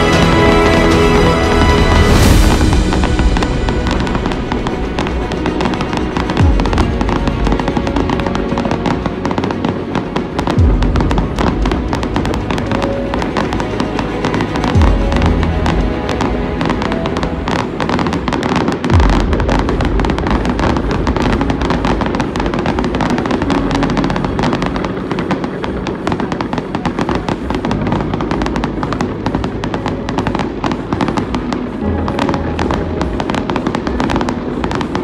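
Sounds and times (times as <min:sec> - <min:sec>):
background music: 0:00.0 - 0:35.0
deep firework boom: 0:00.0 - 0:35.0
fireworks crackling and popping: 0:00.0 - 0:35.0.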